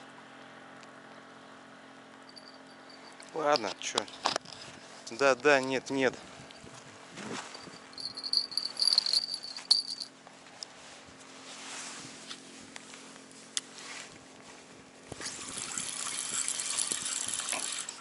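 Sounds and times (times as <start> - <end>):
fishing rod bell jingling: 2.3 - 4.0, 7.5 - 10.1.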